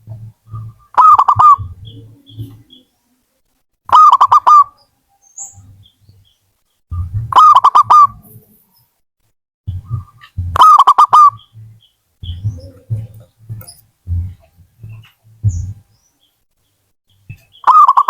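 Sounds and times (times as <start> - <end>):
dove cooing: 0.1 - 2.9, 3.9 - 4.8, 7.0 - 8.6, 9.7 - 15.8.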